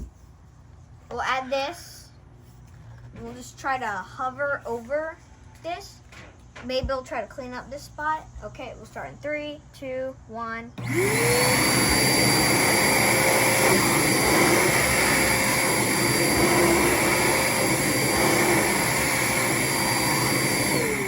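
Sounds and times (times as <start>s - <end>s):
rush of air from vacuum: 10.8s - 21.0s
shop vacuum motor whine: 10.8s - 21.0s.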